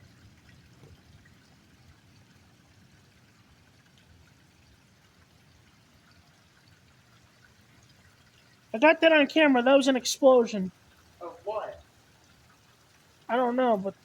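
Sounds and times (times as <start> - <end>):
heavy rain: 8.8 - 12.2, 13.2 - 14.0.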